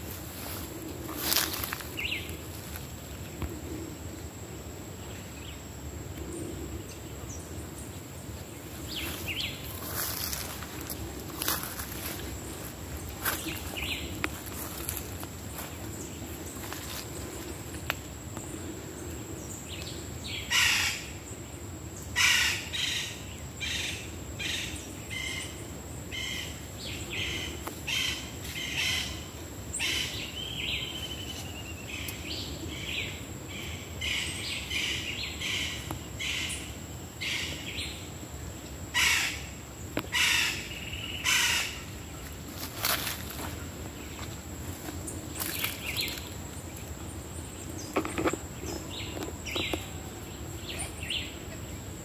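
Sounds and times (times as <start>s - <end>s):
harsh bird calls: 38.9s - 44.2s.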